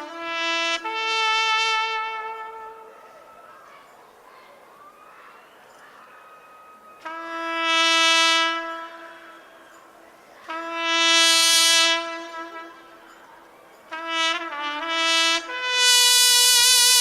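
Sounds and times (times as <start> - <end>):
solo trumpet long notes: 0.0 - 3.2, 6.7 - 13.1, 13.9 - 17.0.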